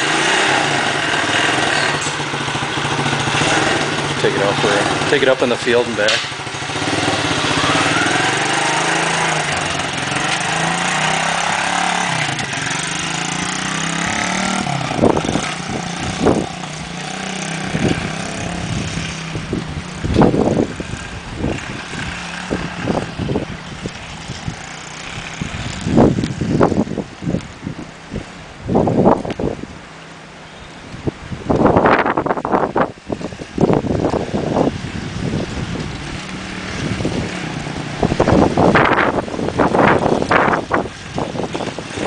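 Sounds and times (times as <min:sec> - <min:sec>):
motorbike engine revving: 0:00.0 - 0:29.3, 0:31.6 - 0:42.0
wind thumps on microphone: 0:14.1 - 0:17.0, 0:17.7 - 0:29.8, 0:31.0 - 0:42.0.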